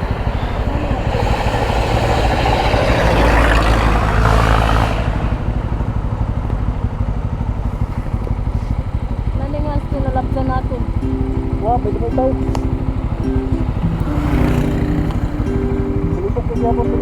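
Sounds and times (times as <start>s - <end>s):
rush of noise: 0.0s - 9.3s
motorcycle engine running: 0.0s - 17.0s.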